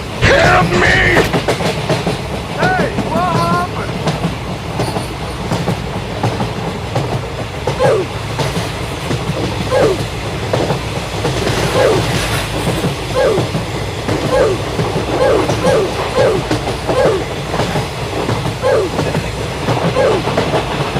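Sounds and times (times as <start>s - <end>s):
train rumbling on rails: 0.0s - 20.9s
rail squeak: 7.8s - 8.1s, 9.6s - 10.1s, 11.4s - 20.6s.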